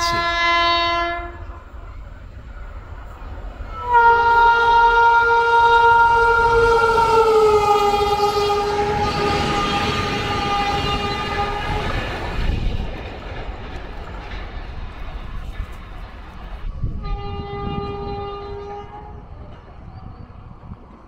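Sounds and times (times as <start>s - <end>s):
train horn chord: 0.0s - 1.6s, 3.7s - 12.2s, 17.0s - 19.3s
rush of passing train: 0.0s - 21.0s.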